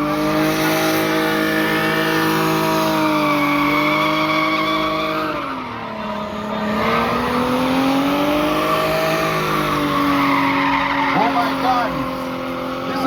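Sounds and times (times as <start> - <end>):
car engine at high revs: 0.0 - 13.0
tyres squealing: 8.5 - 12.1.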